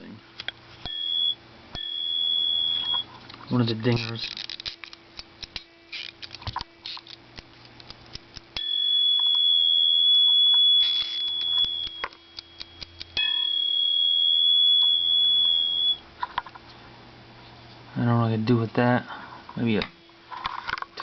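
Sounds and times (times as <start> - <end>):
small timer bell ringing: 10.5 - 16.0.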